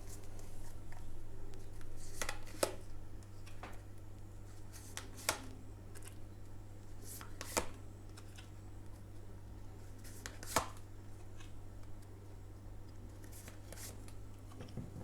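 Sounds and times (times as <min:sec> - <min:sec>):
cards shuffling: 0:01.8 - 0:02.8, 0:10.0 - 0:11.5
cards slapping on table: 0:07.2 - 0:08.3, 0:10.2 - 0:10.8.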